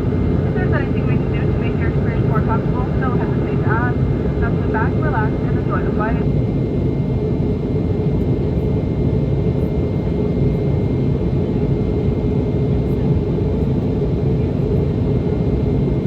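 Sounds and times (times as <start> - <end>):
faint steady tones: 0.0 - 6.3
jet engine cabin rumble: 0.0 - 16.0.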